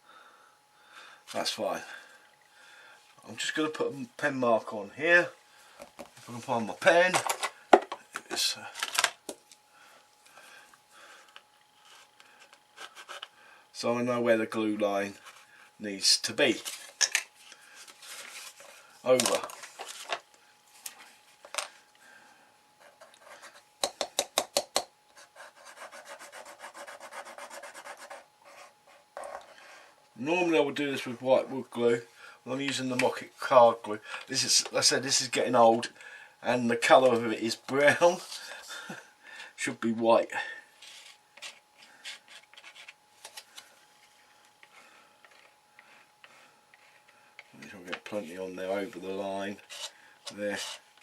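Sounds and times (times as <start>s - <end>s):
sharp scraping on card: 40.8s - 43.6s, 49.6s - 50.9s.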